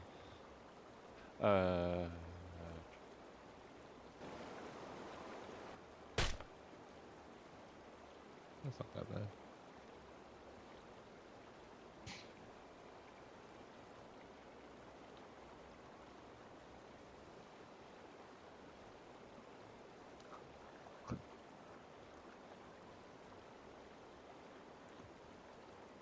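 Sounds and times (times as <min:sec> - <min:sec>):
faint background hiss: 0:00.0 - 0:26.0
sharp click: 0:06.2 - 0:06.5.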